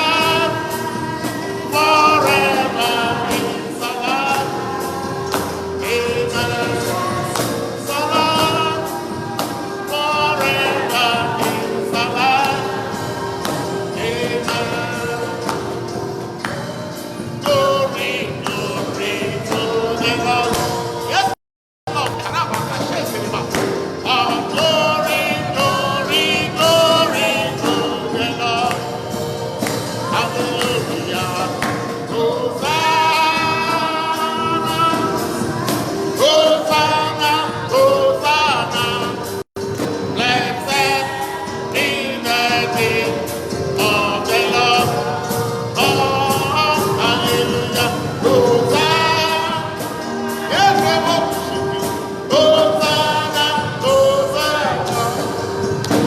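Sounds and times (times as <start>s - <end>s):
voices singing a praise song: 0.0s - 56.0s
held instrumental note: 21.9s - 27.4s.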